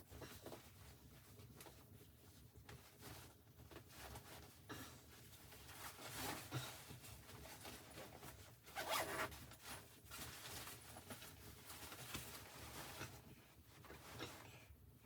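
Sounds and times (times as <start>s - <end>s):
gear or clothing rustling: 5.3s - 14.3s.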